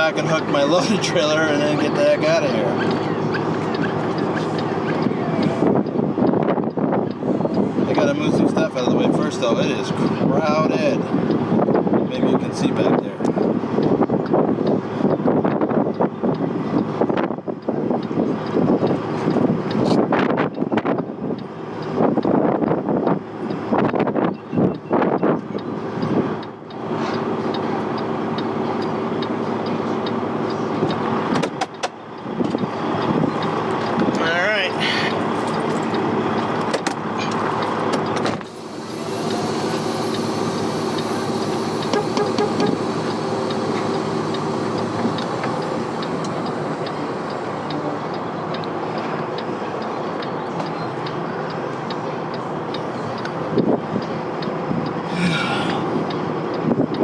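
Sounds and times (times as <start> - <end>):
diesel truck engine running: 0.0 - 57.0
light regular ticking: 38.8 - 55.1.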